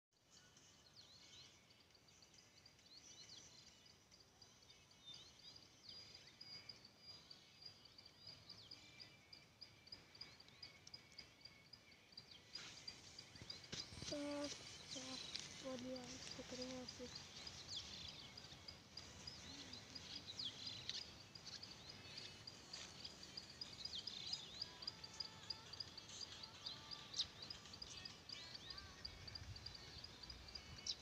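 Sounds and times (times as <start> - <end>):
birds chirping and whistling: 12.2 - 31.0.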